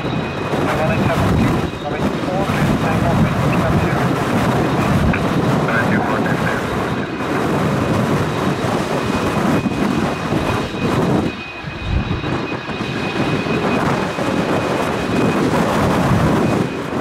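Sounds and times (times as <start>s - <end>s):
turboprop engine running: 0.0s - 17.0s
wind buffeting microphone: 0.0s - 17.0s.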